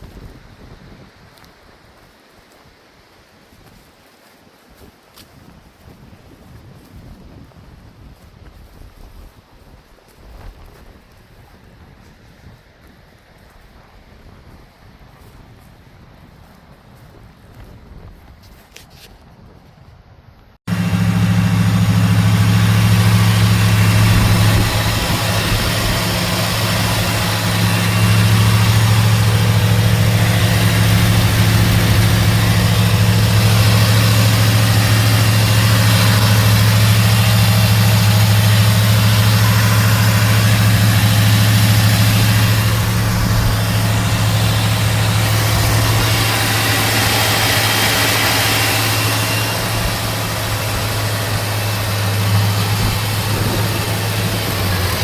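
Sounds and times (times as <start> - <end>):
car engine idling: 20.7 - 55.0.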